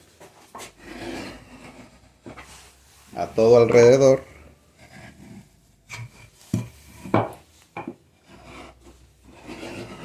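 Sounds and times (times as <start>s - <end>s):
marking gauge scratching wood: 0.6s - 2.5s, 3.3s - 7.1s, 8.2s - 10.0s
wood knocking: 6.0s - 8.0s.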